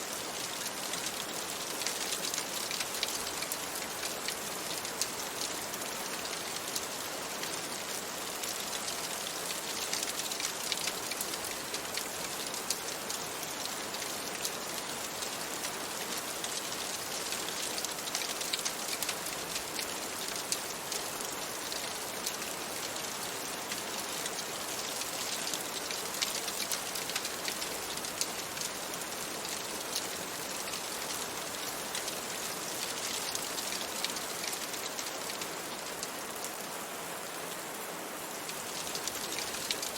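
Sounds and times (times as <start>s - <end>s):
steady rain: 0.0s - 39.9s
raindrops ticking: 8.5s - 22.6s, 23.7s - 36.1s, 38.4s - 39.9s.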